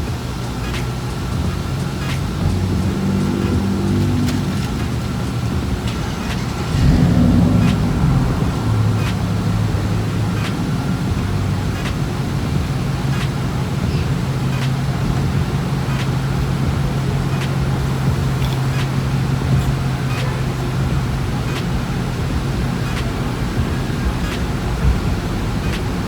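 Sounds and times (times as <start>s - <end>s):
motor hum: 0.0s - 26.0s
rushing noise: 0.0s - 26.0s.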